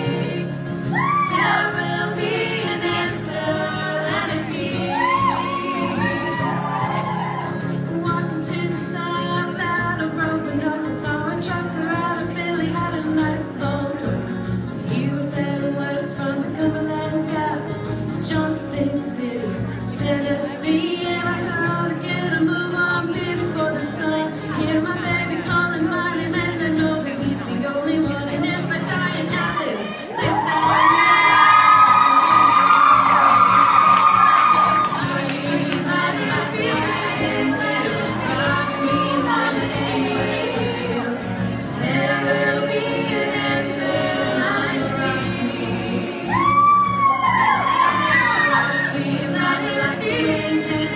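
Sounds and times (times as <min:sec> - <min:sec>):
women singing in harmony: 0:00.0 - 0:50.9
audience whooping and cheering: 0:00.8 - 0:01.8, 0:04.7 - 0:07.9, 0:29.6 - 0:36.0, 0:38.4 - 0:39.9, 0:46.2 - 0:49.1.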